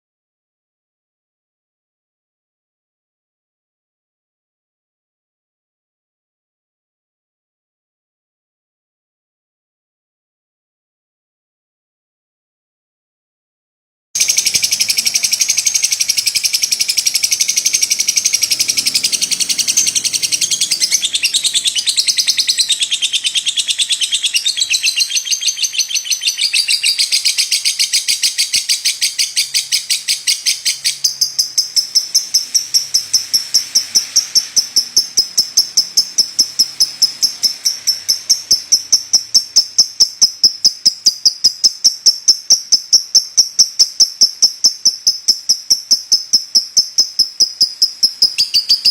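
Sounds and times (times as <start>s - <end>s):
lovebird chattering trill: 14.2s - 48.9s.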